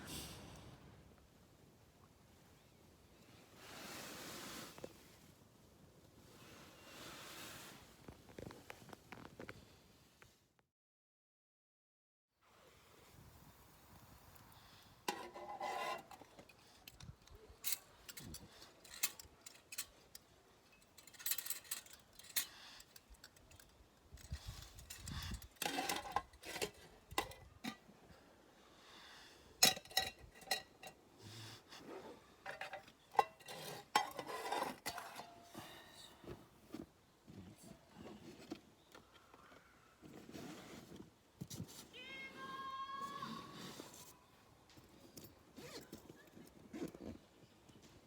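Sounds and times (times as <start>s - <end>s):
cookware clinking and knocking: 29.6s - 30.9s, 32.5s - 35.4s.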